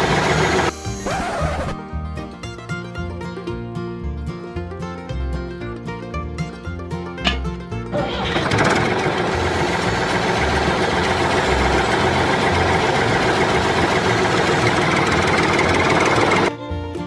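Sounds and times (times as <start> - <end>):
machine running steadily: 0.0 - 0.8, 8.0 - 16.5.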